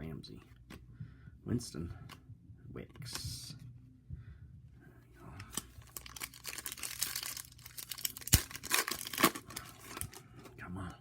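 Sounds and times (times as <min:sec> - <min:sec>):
wrapper tearing and crinkling: 0:05.5 - 0:10.2.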